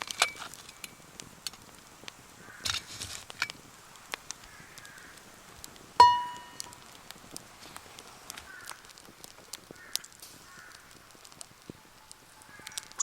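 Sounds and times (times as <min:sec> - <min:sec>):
camp gear clicks and knocks: 0:00.0 - 0:00.9
metal cookware clank: 0:06.0 - 0:06.6.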